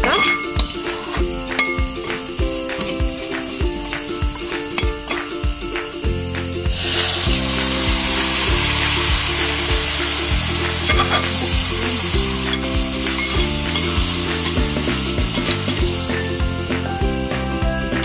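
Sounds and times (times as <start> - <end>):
background music with beat: 0.0 - 18.0
meat sizzling in hot oil: 6.7 - 14.6.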